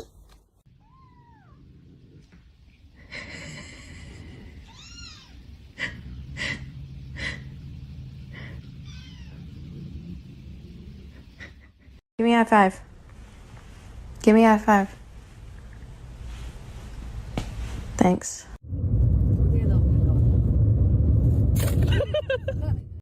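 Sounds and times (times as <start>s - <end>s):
cat meowing: 0.7s - 1.6s, 4.6s - 5.4s.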